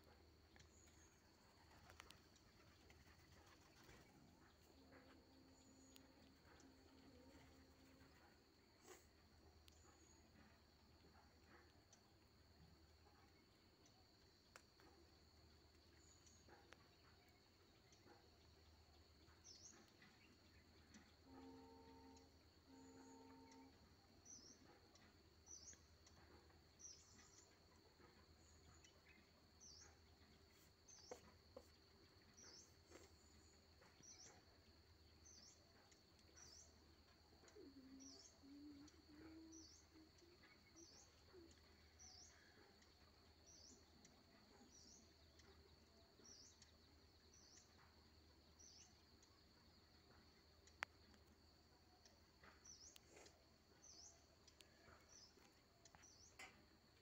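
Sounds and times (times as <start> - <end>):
bird chirping: 15.8 - 57.0.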